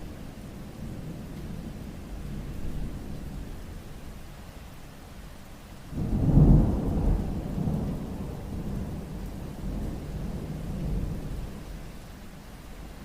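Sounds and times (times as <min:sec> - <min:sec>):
steady rainfall: 0:00.0 - 0:13.0
thunder rumbling: 0:06.0 - 0:11.6.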